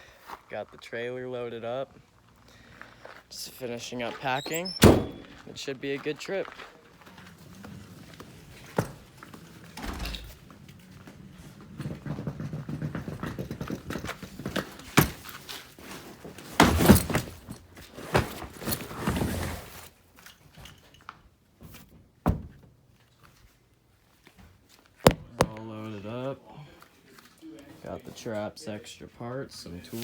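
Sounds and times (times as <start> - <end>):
gear thudding and clattering: 25.1 - 25.5.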